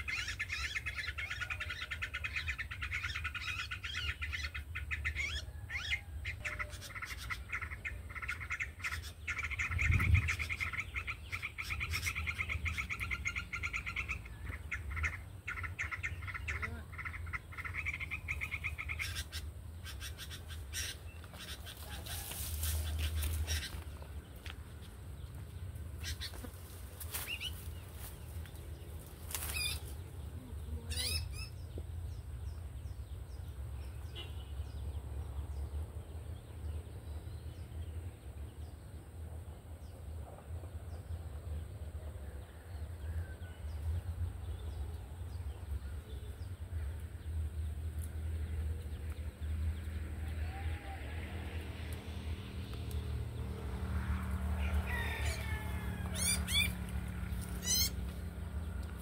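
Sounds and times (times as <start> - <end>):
small birds chirping: 0.0 - 39.0, 54.9 - 59.0.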